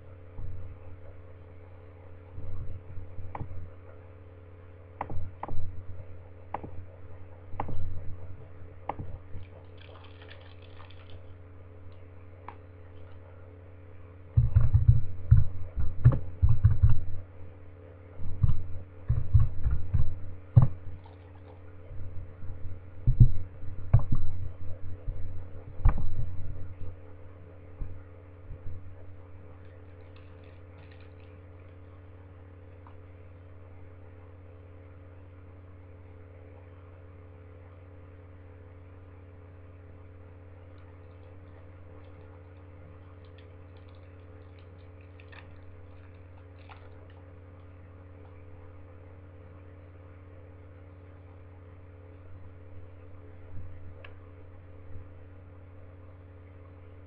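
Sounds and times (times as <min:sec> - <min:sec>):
steady electrical hum: 0:00.0 - 0:57.0
foil wrapper crinkling: 0:09.5 - 0:11.4, 0:29.6 - 0:31.8.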